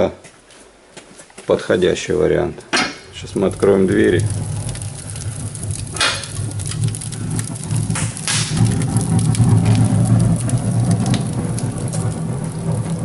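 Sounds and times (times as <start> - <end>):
fire crackling: 1.4 - 13.0
wood fire rumbling: 1.4 - 13.0
metal fireplace doors scraping: 2.8 - 13.0.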